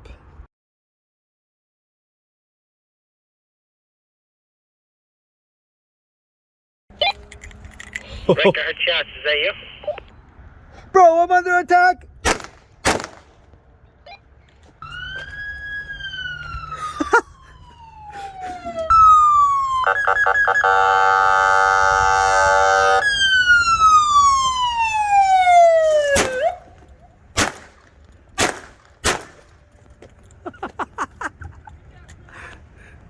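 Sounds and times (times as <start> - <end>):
sharp bangs: 12.2 - 13.5, 22.9 - 26.7, 27.4 - 29.7
electronic police siren: 14.8 - 26.8.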